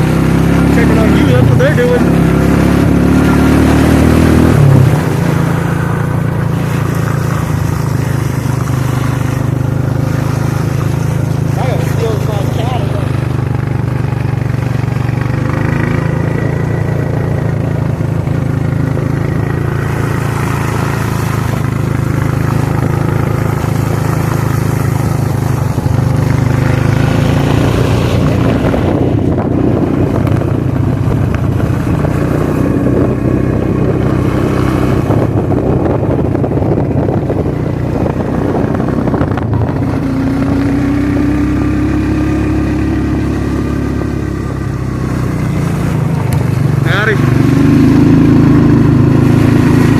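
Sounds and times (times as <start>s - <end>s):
atv engine running: 0.0s - 49.9s.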